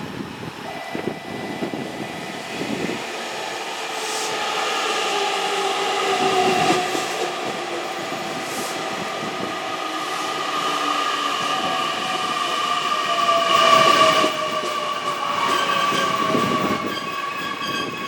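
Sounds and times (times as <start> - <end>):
electric train motor whine: 0.0 - 18.0.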